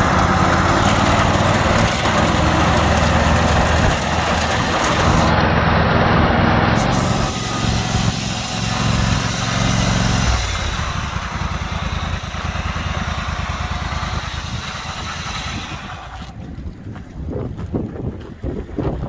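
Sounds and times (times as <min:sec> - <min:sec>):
riding mower engine running: 0:00.0 - 0:17.2.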